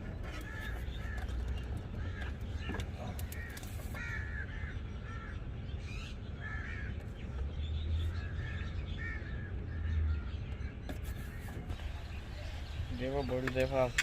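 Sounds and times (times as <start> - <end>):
crows cawing: 0.1 - 5.4, 6.4 - 7.0.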